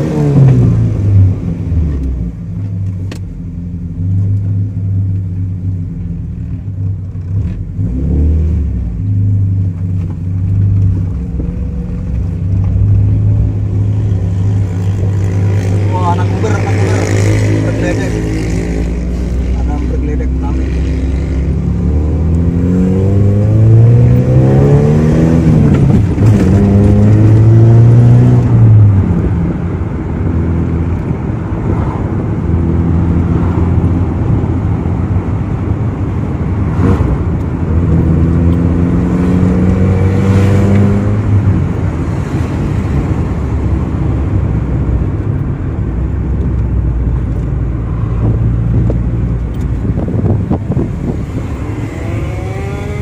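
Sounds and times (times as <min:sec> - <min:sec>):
car engine revving through gears: 0:00.0 - 0:02.2, 0:06.4 - 0:44.6, 0:46.3 - 0:53.0.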